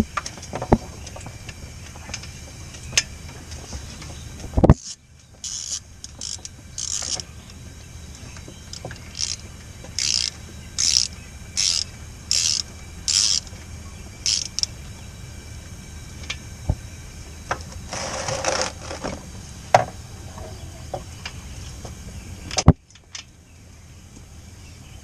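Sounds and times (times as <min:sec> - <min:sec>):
ratchet wrench clicking: 0:04.8 - 0:07.2, 0:09.1 - 0:09.4, 0:10.0 - 0:13.5, 0:14.2 - 0:14.7.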